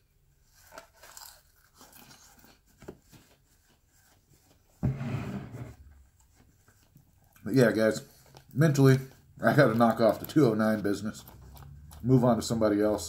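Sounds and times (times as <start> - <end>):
person chewing crunchy food: 0.5 - 2.9, 6.2 - 13.0.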